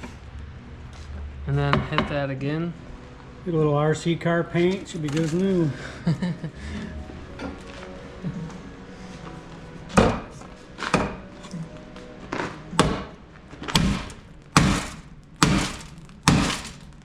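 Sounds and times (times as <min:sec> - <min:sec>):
broken glass rattling: 0:13.7 - 0:17.0
heavy blows on car door: 0:13.8 - 0:16.8.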